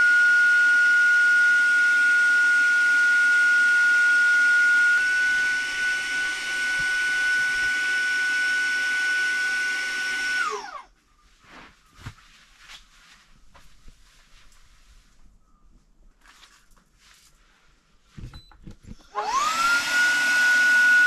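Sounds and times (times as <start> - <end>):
electric air pump whining: 0.0 - 10.9, 19.0 - 21.0.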